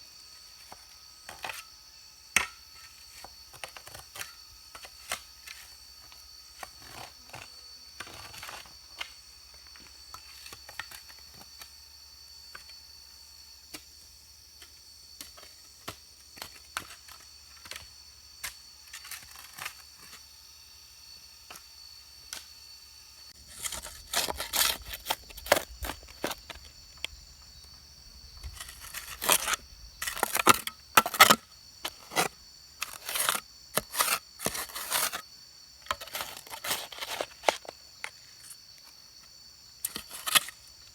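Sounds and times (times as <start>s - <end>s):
loud scraping and tearing strokes: 23.4s - 26.4s, 28.5s - 35.2s.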